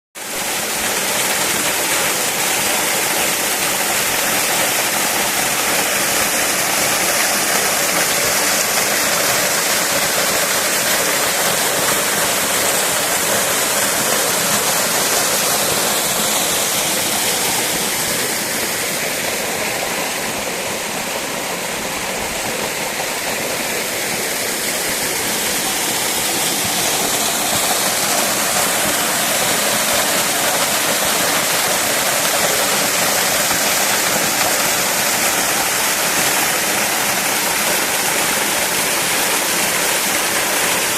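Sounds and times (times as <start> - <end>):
waterfall crashing onto rock: 0.2 - 40.9.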